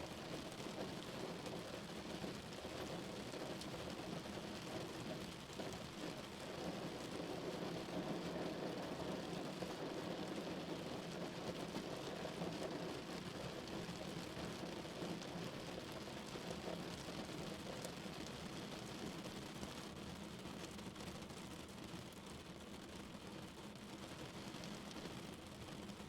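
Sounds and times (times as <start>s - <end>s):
rain falling on a car: 0.0s - 26.0s.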